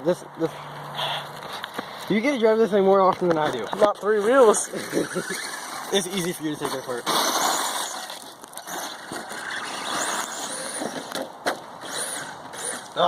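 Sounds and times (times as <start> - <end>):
tyre and chassis rattle: 3.0 - 13.0
rc truck motor whine: 4.4 - 6.4, 7.1 - 13.0.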